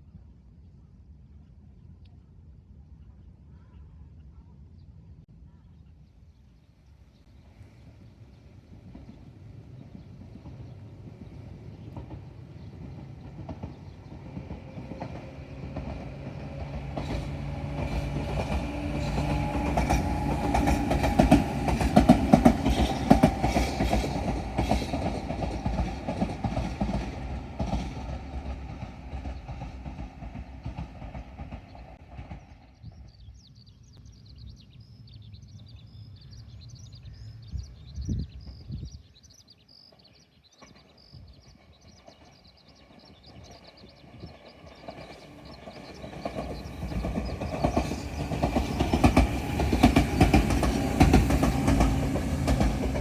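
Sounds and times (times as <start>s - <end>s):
train motor hum: 7.5s - 32.4s, 43.6s - 53.0s
train wheels clattering over rail joints: 10.0s - 32.6s, 41.8s - 53.0s.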